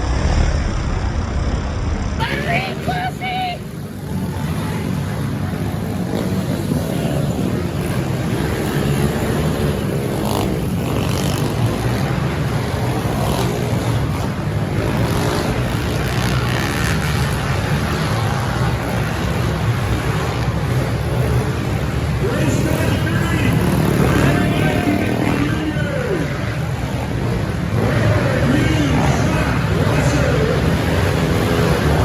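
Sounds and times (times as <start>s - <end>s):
pit bike engines revving: 0.0s - 32.0s.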